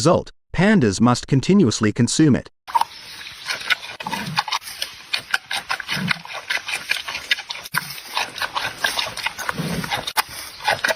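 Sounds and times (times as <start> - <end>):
panda chewing bamboo: 2.7 - 10.9.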